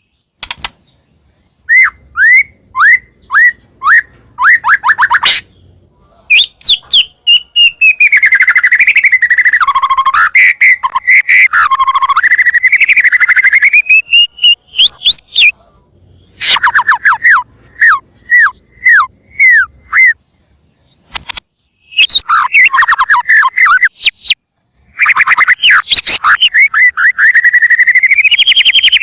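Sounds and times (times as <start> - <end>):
bird singing whistles and trills: 1.6 - 5.6, 6.2 - 15.6, 16.2 - 20.2, 21.7 - 29.0.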